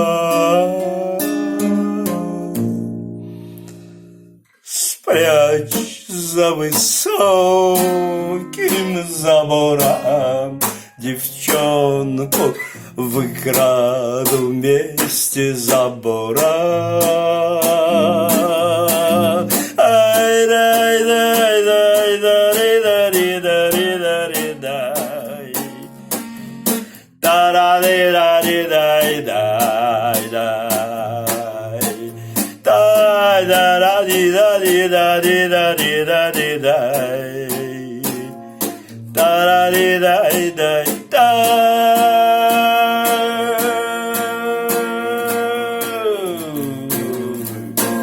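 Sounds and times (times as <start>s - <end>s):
man singing wordlessly: 0.0s - 3.0s, 4.6s - 48.0s
acoustic guitar strummed: 0.0s - 48.0s.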